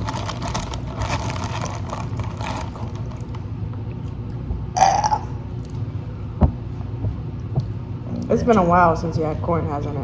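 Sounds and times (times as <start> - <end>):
low steady hum: 0.0 - 10.0
person burping: 4.8 - 5.4.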